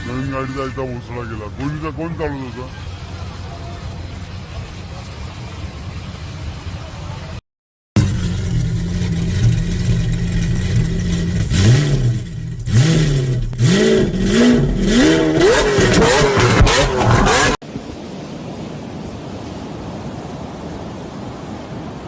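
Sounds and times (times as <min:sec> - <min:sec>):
car engine revving: 0:08.0 - 0:17.6.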